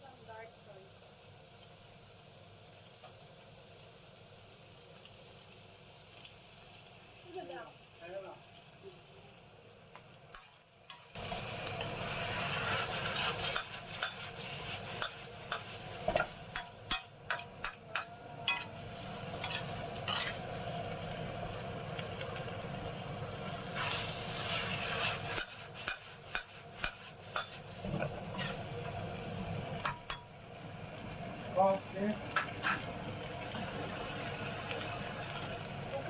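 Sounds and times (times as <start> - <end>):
food sizzling in a pan: 0.0 - 36.0
spatula scraping and clacking pan: 10.3 - 18.7, 19.3 - 20.4, 23.7 - 28.7, 29.8 - 30.3, 32.4 - 32.9.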